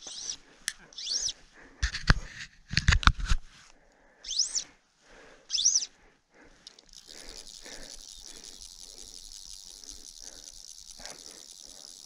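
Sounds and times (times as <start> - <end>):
bird calling: 0.0 - 0.4, 1.0 - 1.4, 4.2 - 4.7, 5.5 - 6.0.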